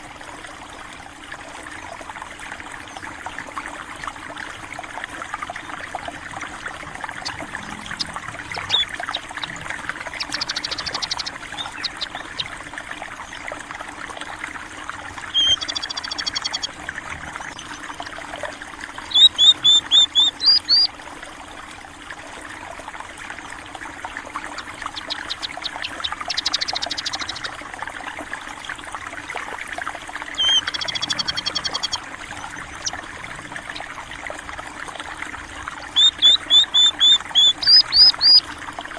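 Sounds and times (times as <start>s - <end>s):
water trickling: 0.0s - 38.9s
small birds chirping: 5.6s - 13.5s, 15.2s - 18.2s, 19.0s - 20.9s, 24.3s - 27.6s, 30.3s - 34.0s, 35.8s - 38.5s.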